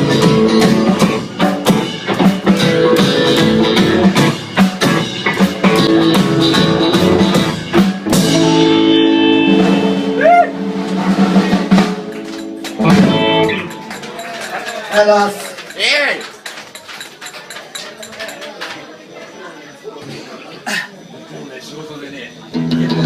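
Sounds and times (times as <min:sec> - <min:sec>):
sustained guitar chords: 0:00.0 - 0:14.0, 0:22.5 - 0:23.0
drum kit hits: 0:00.0 - 0:14.1.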